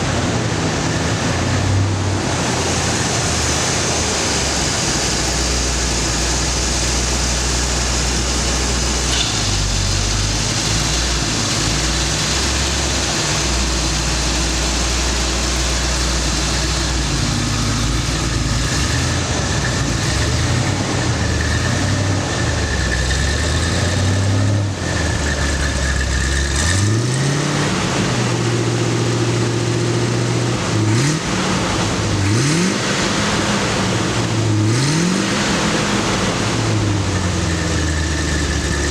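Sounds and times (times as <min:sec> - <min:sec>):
car engine idling: 0:00.0 - 0:38.9
engine revving blips: 0:08.0 - 0:38.9.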